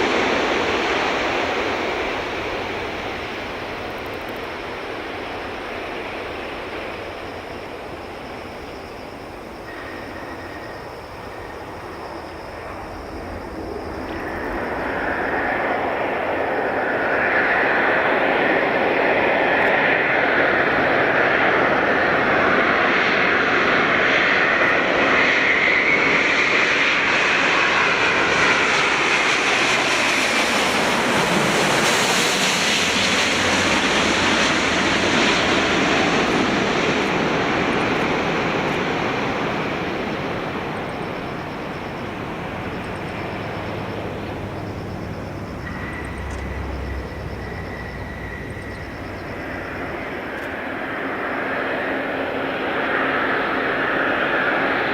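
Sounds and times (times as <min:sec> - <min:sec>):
airliner jet noise with high whine: 0:00.0 - 0:54.9.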